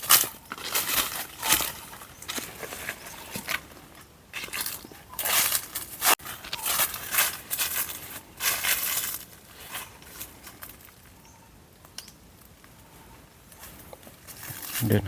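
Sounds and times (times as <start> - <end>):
footsteps crunching dry leaves: 0.0 - 10.9.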